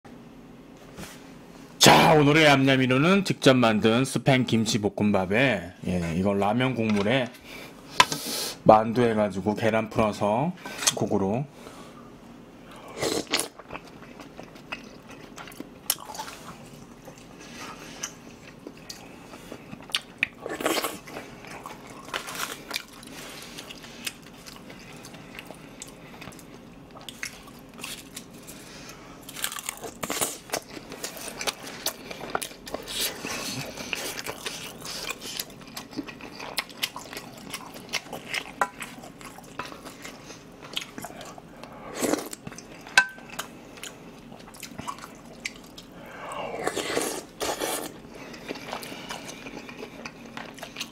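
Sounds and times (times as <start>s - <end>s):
chewing crunchy food: 12.8s - 50.9s.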